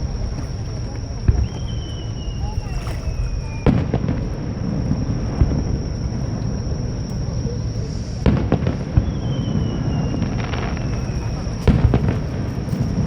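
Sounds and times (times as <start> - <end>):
faint falling whistle: 1.3 - 4.0, 9.0 - 11.7
firework shells bursting: 8.2 - 13.0.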